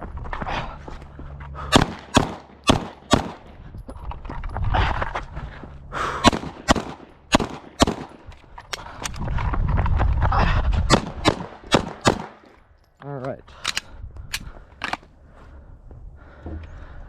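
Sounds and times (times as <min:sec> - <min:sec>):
pistol shots in pairs: 0:01.7 - 0:03.5, 0:06.2 - 0:08.2, 0:10.9 - 0:12.4.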